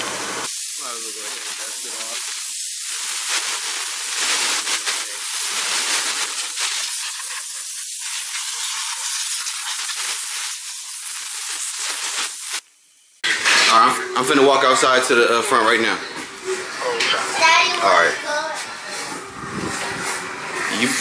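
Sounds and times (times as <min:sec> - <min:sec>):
loud steady hiss: 0:00.0 - 0:15.8.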